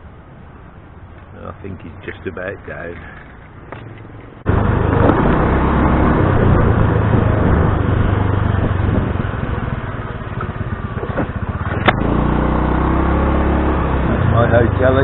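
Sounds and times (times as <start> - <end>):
scooter engine hum: 0.0 - 15.0
wind noise on microphone: 4.5 - 12.1.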